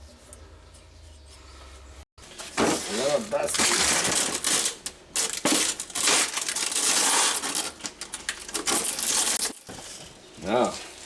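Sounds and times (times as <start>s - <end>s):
plastic packaging crinkling: 2.3s - 11.0s.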